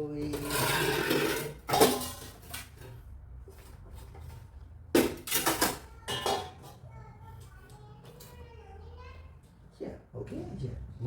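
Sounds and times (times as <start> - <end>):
hard objects clattering: 0.3 - 3.0.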